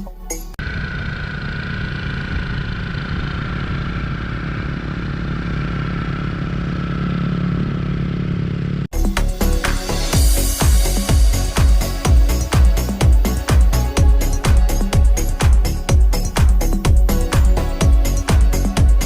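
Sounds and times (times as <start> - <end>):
music: 0.0 - 0.6, 8.9 - 19.0
motorcycle engine running: 0.6 - 19.0.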